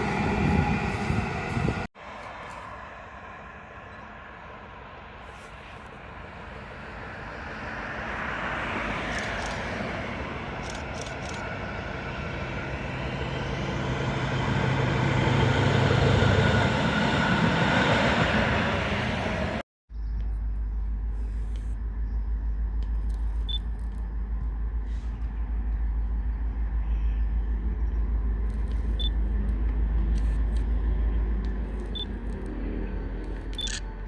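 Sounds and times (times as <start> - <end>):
locomotive low hum: 0.0 - 1.9, 3.8 - 34.0
freight train passing: 0.0 - 19.6, 24.6 - 34.0.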